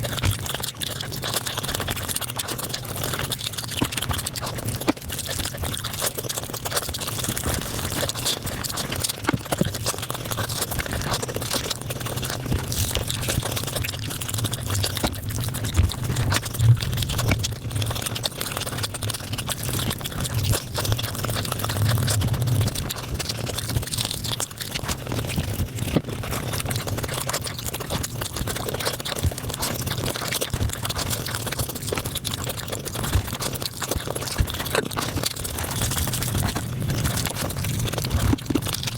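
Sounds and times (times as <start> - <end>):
sped-up chewing noises: 0.0 - 38.9
low steady hum: 12.0 - 18.2, 20.1 - 24.9, 35.2 - 38.9.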